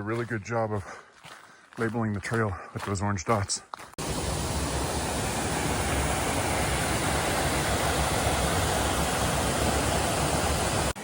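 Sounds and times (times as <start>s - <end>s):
rushing stream water: 4.0s - 11.0s.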